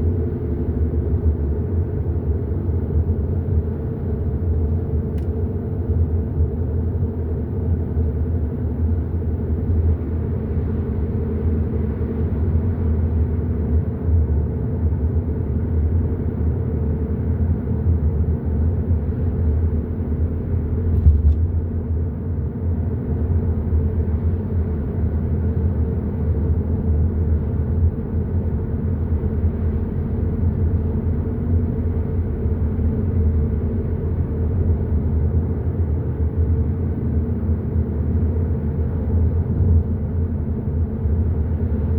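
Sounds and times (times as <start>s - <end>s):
car engine and road noise: 0.0s - 41.9s
car going over bump: 20.9s - 21.6s.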